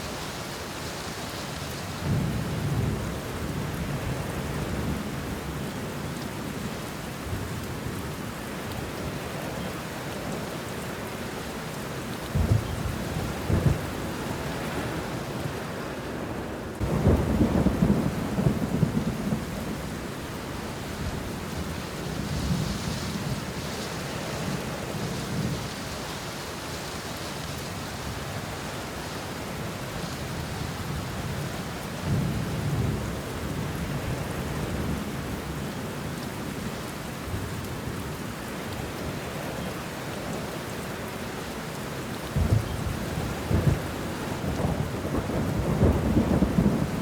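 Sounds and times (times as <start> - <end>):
rain on leaves: 0.0 - 47.0
thunder rumbling: 12.4 - 15.0, 16.8 - 20.5, 42.4 - 47.0.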